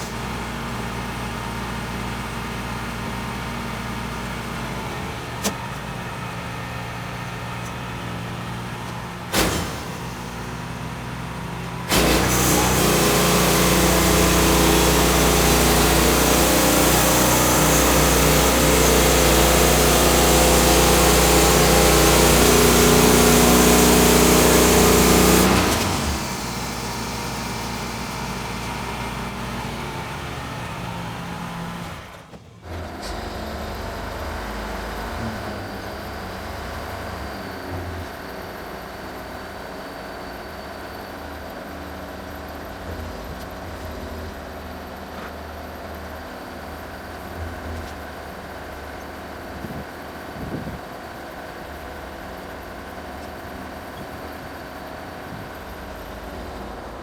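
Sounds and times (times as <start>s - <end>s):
sawmill petrol engine running: 0.0s - 57.0s
saw cutting hiss: 11.9s - 30.7s.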